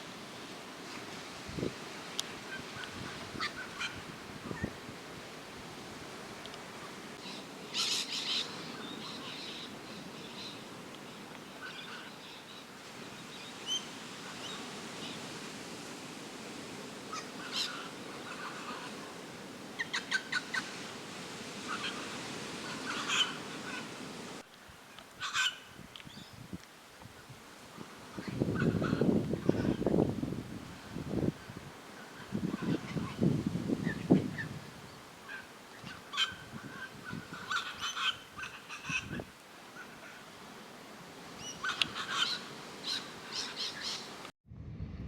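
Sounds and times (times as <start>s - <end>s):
steady background hiss: 0.0s - 44.3s
wild birds chirping: 7.2s - 15.3s, 41.4s - 44.2s.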